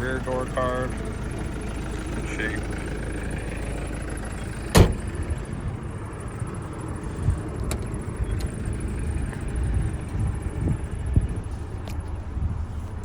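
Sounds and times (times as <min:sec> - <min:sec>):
low steady rumble: 0:00.0 - 0:13.0
sharp knock: 0:04.8 - 0:05.0.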